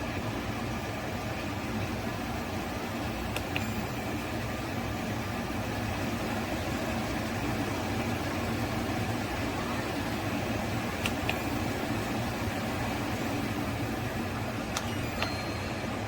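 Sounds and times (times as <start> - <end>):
air conditioner humming: 0.0 - 16.0
small clicks: 11.0 - 11.6.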